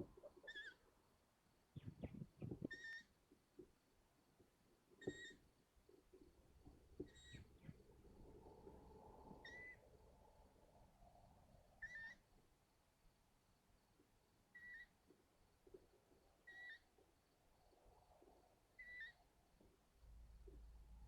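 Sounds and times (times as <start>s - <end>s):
owl chicks squeaky begging calls: 0.3s - 0.8s, 2.7s - 3.1s, 5.0s - 5.4s, 9.4s - 9.8s, 11.8s - 12.2s, 14.6s - 14.9s, 16.5s - 16.9s, 18.8s - 19.2s.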